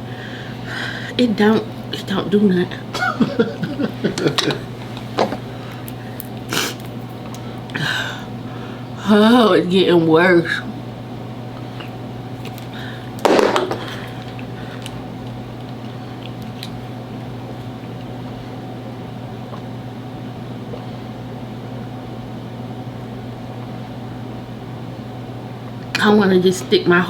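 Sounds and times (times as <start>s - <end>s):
low room hum: 0.0s - 27.0s.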